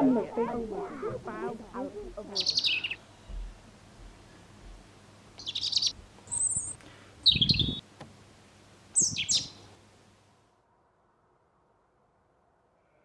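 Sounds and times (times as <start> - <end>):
small birds chirping: 0.0 - 7.9, 8.9 - 9.8
low thump: 3.3 - 4.8.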